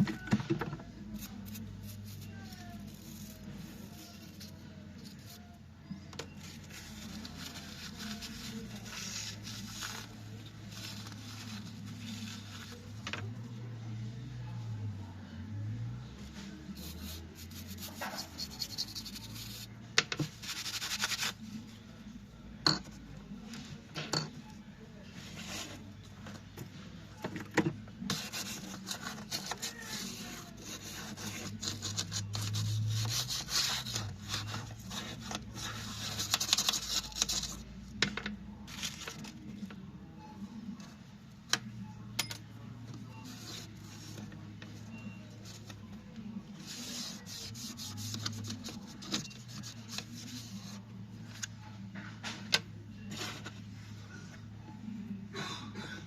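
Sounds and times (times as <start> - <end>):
rubbing and scraping on laptop: 6.4 - 13.0, 16.3 - 21.4, 28.1 - 37.7, 46.6 - 50.9.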